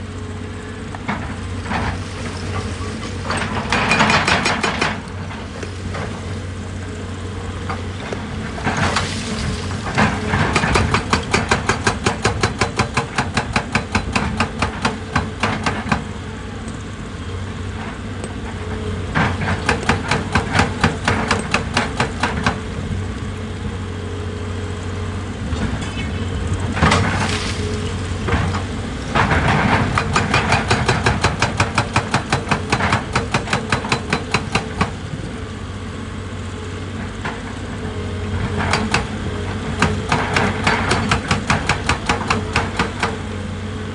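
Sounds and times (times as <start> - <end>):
diesel engine running: 0.0 - 43.9
hydraulic hammer striking rock: 3.3 - 5.7, 10.0 - 16.2, 19.3 - 23.0, 28.5 - 35.4, 38.5 - 43.5.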